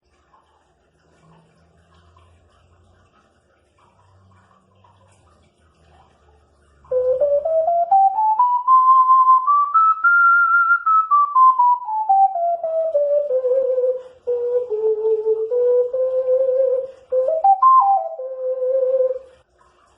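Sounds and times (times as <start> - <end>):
ocarina playing a scale: 6.9 - 19.4.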